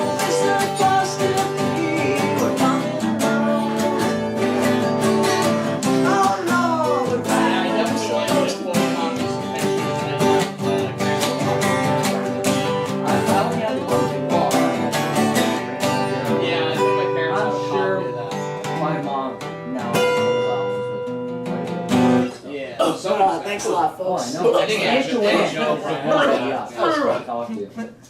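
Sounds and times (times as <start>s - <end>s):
acoustic guitar strumming: 0.0s - 22.4s.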